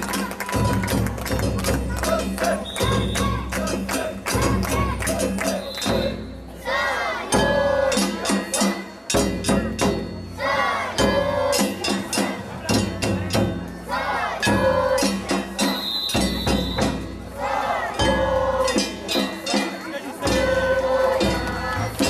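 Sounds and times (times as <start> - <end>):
metal gong or bells: 7.4 - 13.5
rapid drum strikes: 11.0 - 13.8.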